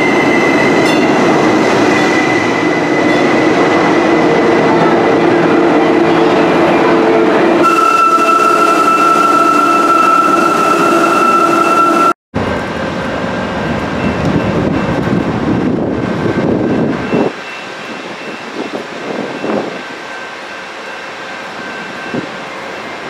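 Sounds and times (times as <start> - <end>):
train whine of held tones: 0.0 - 12.2
train rumble at station: 0.0 - 23.0.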